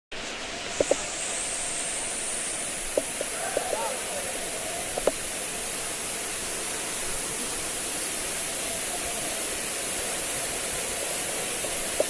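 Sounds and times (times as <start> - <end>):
waterfall rushing: 0.2 - 12.0.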